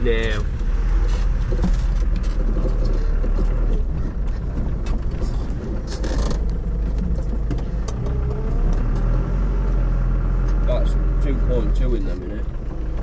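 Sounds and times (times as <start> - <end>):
rattles and knocks from body: 0.0 - 9.2
engine low rumble: 0.0 - 13.0.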